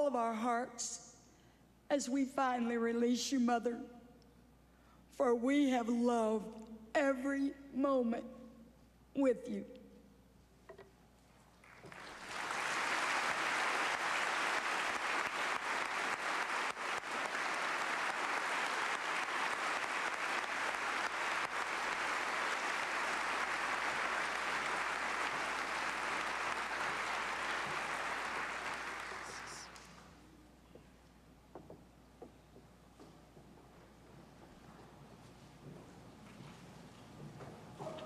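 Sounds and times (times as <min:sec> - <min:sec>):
crowd applauding: 0:11.6 - 0:30.1.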